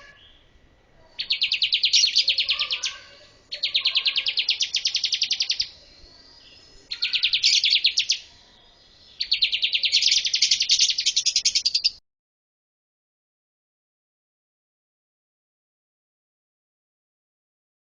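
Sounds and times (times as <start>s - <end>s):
bird singing fast high trills: 1.2s - 8.3s, 8.9s - 12.0s.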